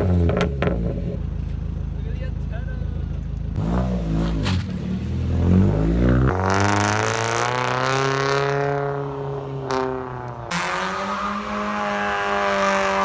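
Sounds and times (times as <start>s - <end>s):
car engine revving: 0.0s - 1.4s, 3.4s - 13.0s
louder car engine accelerating: 3.5s - 13.0s.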